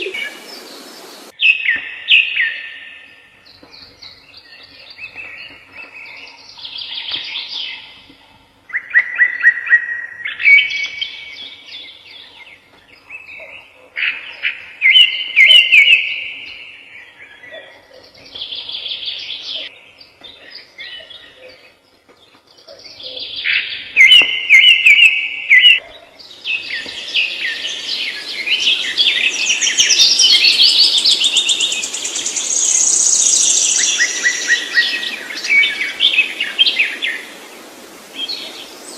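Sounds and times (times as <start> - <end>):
birds chirping: 0.0 - 8.2, 8.8 - 38.9.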